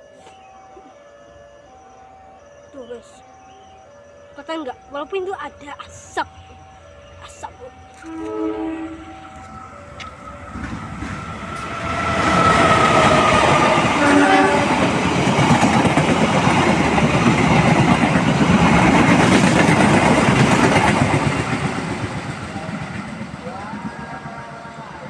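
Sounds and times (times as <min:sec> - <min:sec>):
passenger train passing: 0:04.3 - 0:25.0
train horn: 0:08.0 - 0:15.7, 0:23.4 - 0:25.0.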